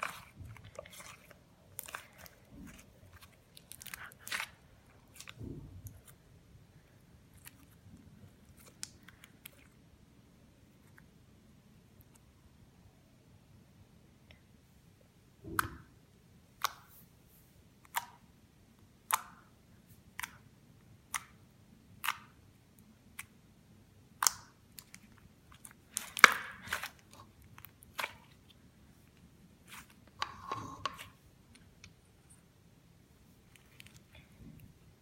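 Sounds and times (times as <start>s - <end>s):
slime crackling squish: 0.0s - 6.2s, 24.1s - 32.4s, 33.3s - 34.8s
slime popping and clicking: 24.2s - 24.9s.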